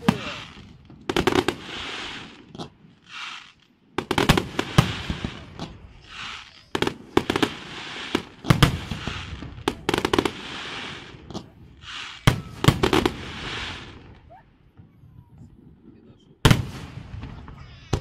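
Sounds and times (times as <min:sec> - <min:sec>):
hissing crackle: 0:04.4 - 0:14.3.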